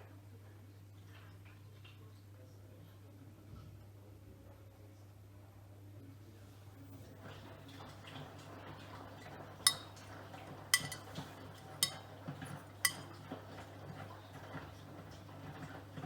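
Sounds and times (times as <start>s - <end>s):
metallic clinks in washing drum: 9.7s - 10.0s, 10.8s - 13.1s.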